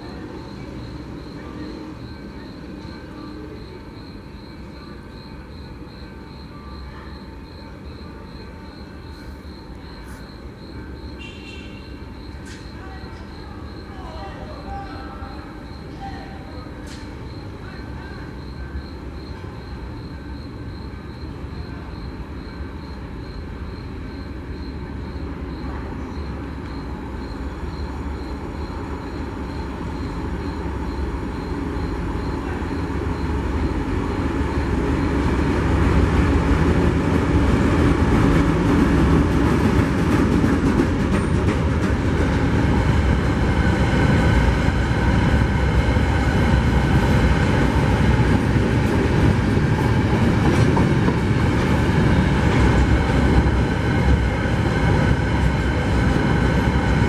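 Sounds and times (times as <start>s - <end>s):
freight train wheels clattering: 34.8s - 57.0s.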